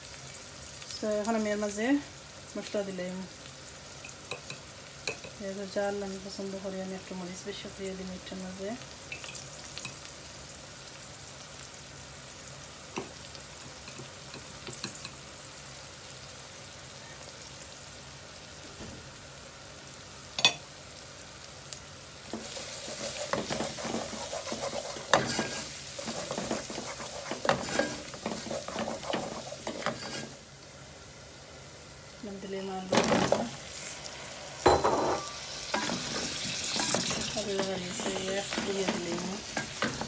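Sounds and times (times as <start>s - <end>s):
onions sizzling in a pot: 0.0s - 40.0s
wooden spoon scraping a pot: 22.4s - 30.4s.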